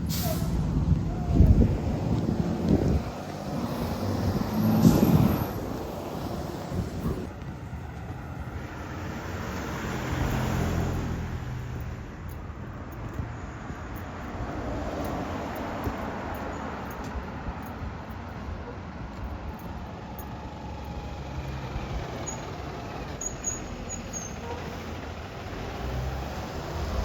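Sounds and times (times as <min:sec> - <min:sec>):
bus engine hum: 0:00.0 - 0:27.0
road noise: 0:00.0 - 0:27.0.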